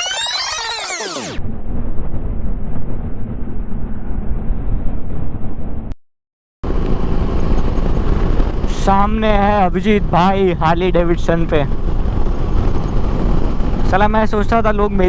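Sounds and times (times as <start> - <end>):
wind noise: 1.4 - 6.0, 6.6 - 15.0
motorcycle road rumble: 6.6 - 15.0.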